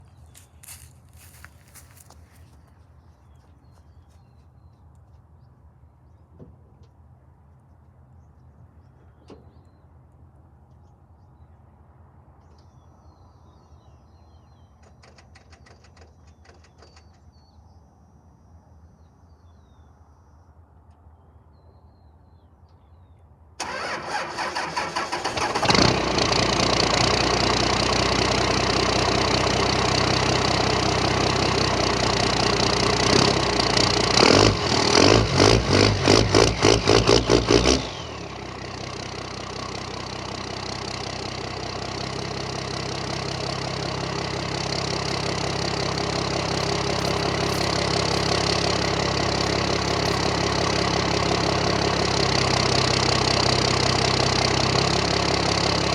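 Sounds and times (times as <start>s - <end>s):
engine starter cranking: 23.6s - 26.9s, 44.8s - 51.5s
car engine revving and idling: 25.3s - 55.9s.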